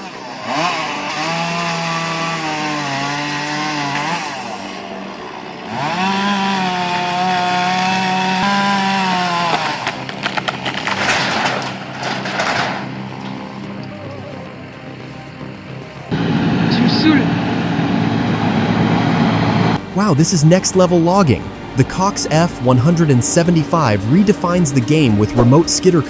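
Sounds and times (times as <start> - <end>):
chainsaw cutting at full throttle: 0.0 - 10.5, 16.1 - 19.8
wood cracking and snapping: 9.5 - 13.0.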